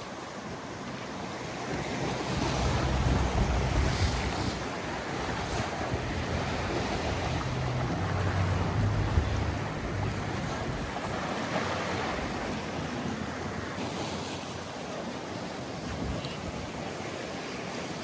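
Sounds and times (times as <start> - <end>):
small waves washing on beach: 0.0 - 18.0
wind buffeting microphone: 1.1 - 14.0.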